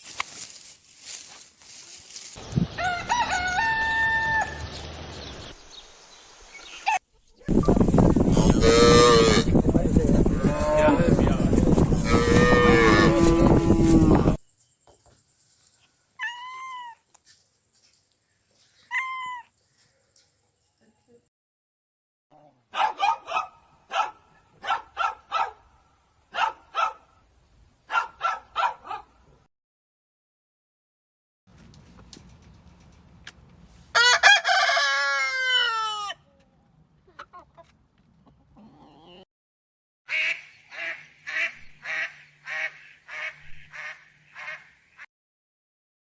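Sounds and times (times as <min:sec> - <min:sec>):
dog barking: 0:22.7 - 0:25.7, 0:26.3 - 0:27.2, 0:27.9 - 0:29.2.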